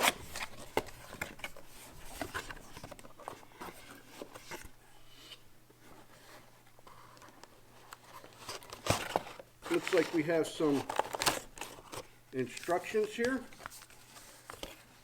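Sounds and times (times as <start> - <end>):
packaging rustling: 7.0 - 15.0.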